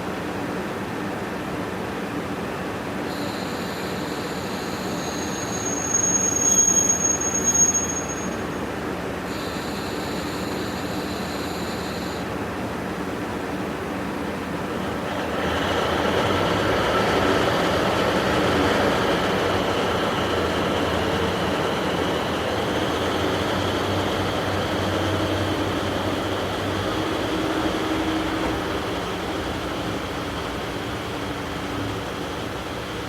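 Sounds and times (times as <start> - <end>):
diesel railcar engine drone: 0.0 - 33.0.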